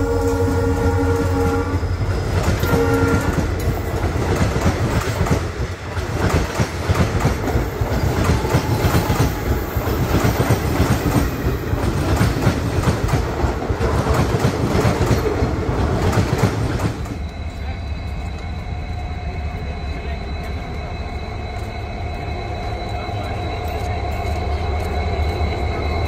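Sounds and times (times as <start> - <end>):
train horn blast: 0.0 - 3.8
deep train rumble: 0.0 - 26.0
train wheels clacking over joints: 2.0 - 26.0.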